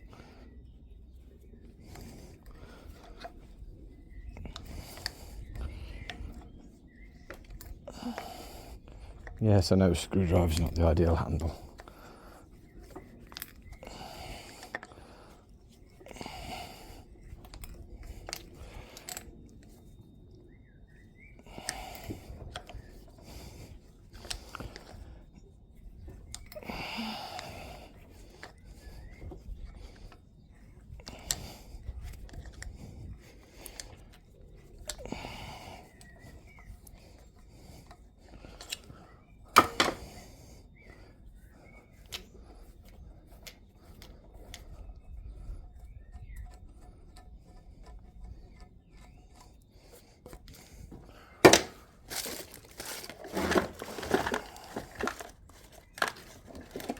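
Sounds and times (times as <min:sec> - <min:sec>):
hand tools clicking on metal: 0:39.6 - 0:40.2, 0:45.4 - 0:56.9.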